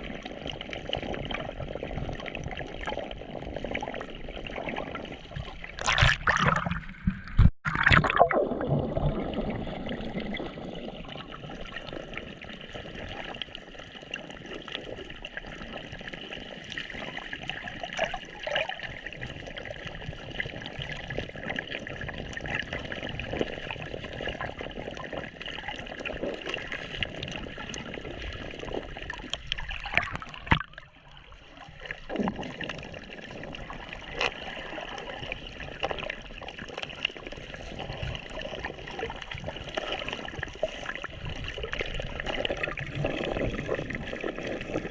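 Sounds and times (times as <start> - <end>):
water gurgling and sloshing: 0.0 - 44.9
water splashes: 0.0 - 44.9.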